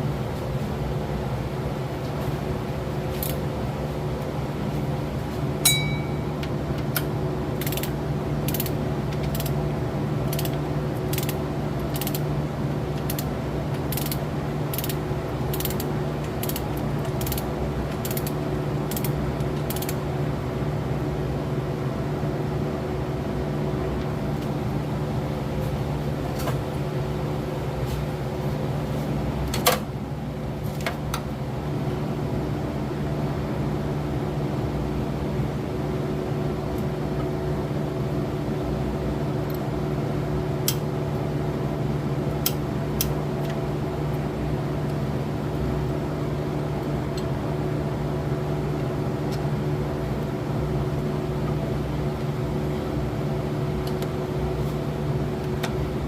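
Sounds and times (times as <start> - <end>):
metallic tool clink: 5.7 - 6.2
ratchet wrench clicking: 7.6 - 7.9, 8.5 - 9.5, 10.3 - 12.2, 13.9 - 16.6, 17.2 - 17.4, 18.0 - 19.1, 19.7 - 20.0.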